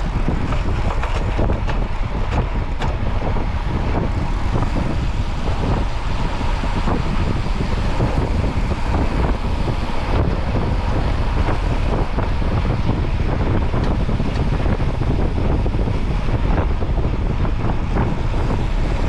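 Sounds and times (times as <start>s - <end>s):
road traffic noise: 0.0s - 19.0s
wind buffeting microphone: 0.0s - 19.0s.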